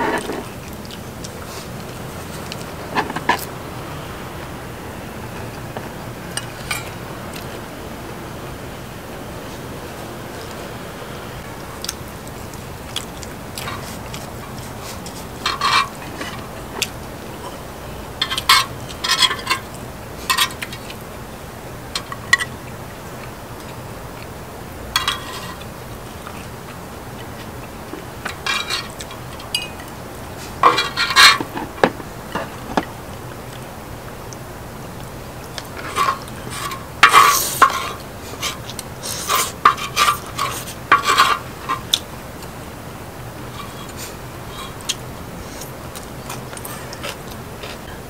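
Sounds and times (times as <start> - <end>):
utensils clinking on dishes: 6.3 - 7.5, 11.8 - 17.6, 18.2 - 21.0, 24.9 - 26.5, 27.2 - 32.8, 35.6 - 42.5.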